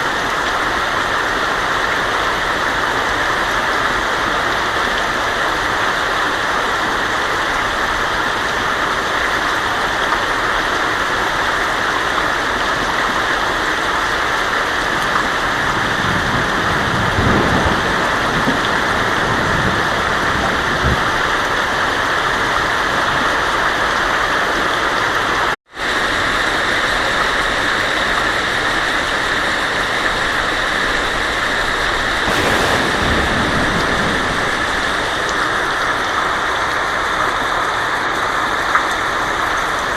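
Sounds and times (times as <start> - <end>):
heavy rain on a tin roof: 0.0 - 39.9
low thunder rumbles: 32.0 - 36.9.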